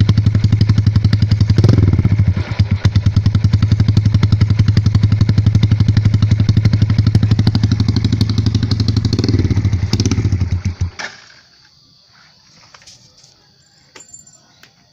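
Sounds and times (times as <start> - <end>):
motorcycle engine idling: 0.0 - 11.5.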